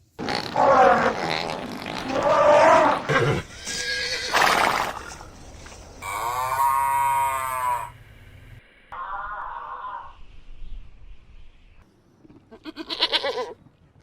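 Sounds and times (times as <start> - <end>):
farm animal calls: 0.2 - 5.2, 6.0 - 8.0.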